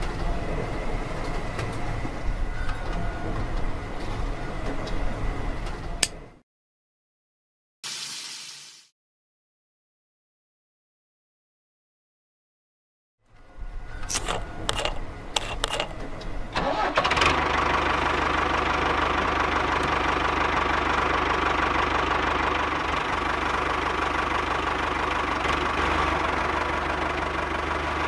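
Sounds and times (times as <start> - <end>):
sharp clicks: 14.0 - 16.0
tractor engine starting and idling: 14.0 - 28.0.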